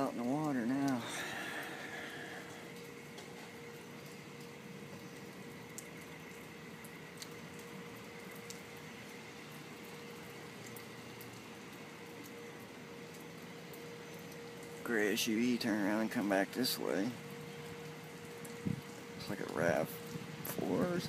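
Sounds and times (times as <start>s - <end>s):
thin steady hum: 0.0s - 21.0s
faint ticks: 2.7s - 10.0s.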